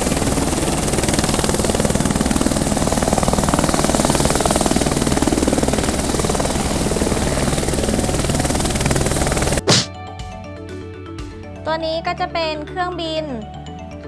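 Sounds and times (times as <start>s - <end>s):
helicopter rotor blades chopping: 0.0s - 9.9s.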